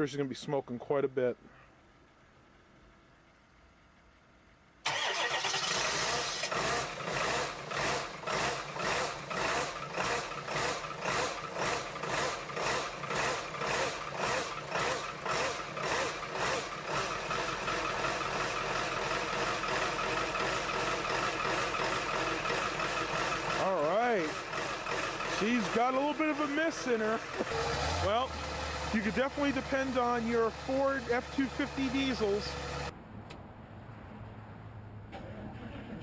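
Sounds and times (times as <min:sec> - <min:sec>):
diesel engine running unevenly: 0:04.9 - 0:32.9.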